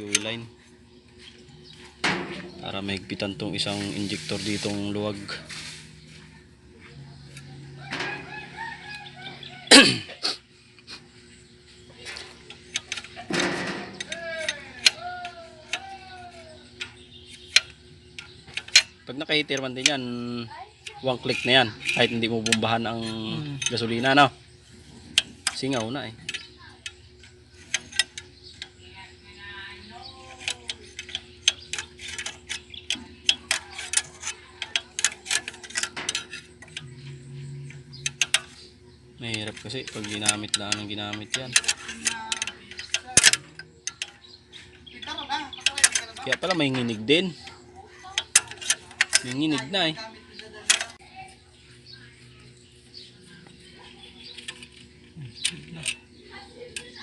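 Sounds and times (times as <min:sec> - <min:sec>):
rooster crowing: 0:07.5 - 0:09.7
metallic clicks of hand tools: 0:39.3 - 0:44.2.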